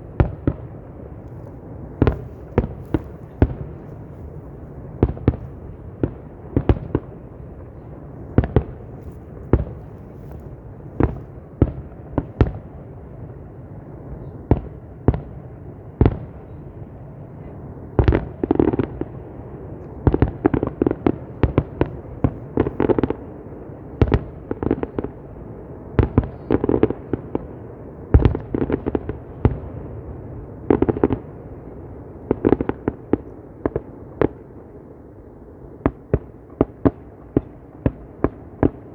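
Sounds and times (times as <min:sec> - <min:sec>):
background noise rush: 0:00.0 - 0:38.9
fireworks crackling: 0:01.1 - 0:07.5, 0:08.2 - 0:12.4
fireworks bursting: 0:01.3 - 0:12.6.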